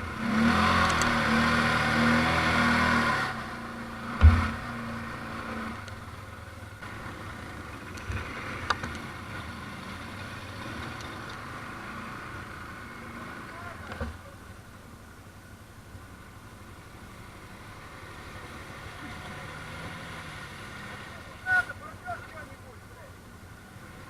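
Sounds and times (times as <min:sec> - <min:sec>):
atv engine running: 0:00.0 - 0:24.0
sharp thump: 0:04.1 - 0:04.8.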